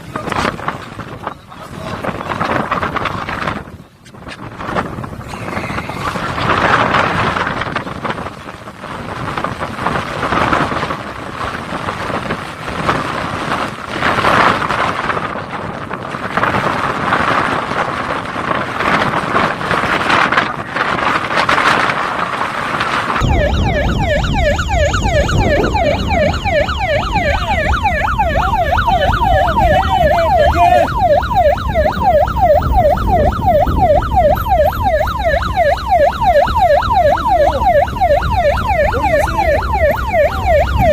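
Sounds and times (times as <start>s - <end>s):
rushing wind and water: 0.0s - 40.9s
siren yelping: 5.2s - 8.4s, 23.2s - 40.9s.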